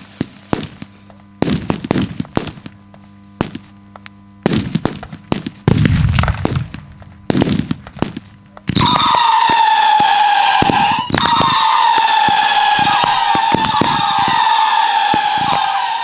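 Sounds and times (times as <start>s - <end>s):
firework bangs and crackling: 0.0s - 3.8s, 4.4s - 16.0s
firework pops: 0.0s - 15.8s
shrill firework whistle: 8.7s - 16.0s.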